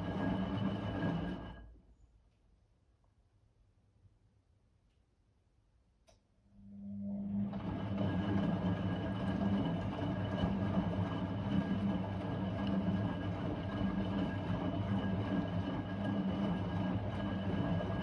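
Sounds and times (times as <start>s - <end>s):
washing machine hum: 0.0s - 1.6s, 6.9s - 18.0s
washing machine running: 0.0s - 1.6s, 7.0s - 18.0s.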